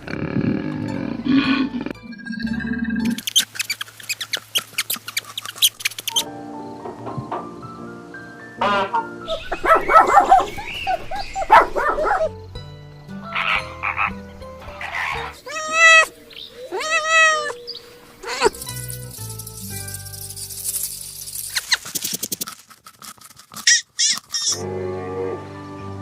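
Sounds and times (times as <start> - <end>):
background music: 0.4 - 3.2, 6.2 - 16.0, 18.3 - 21.4, 24.6 - 26.0
animal croaking calls: 13.2 - 17.6
wavering animal calls: 13.2 - 18.7.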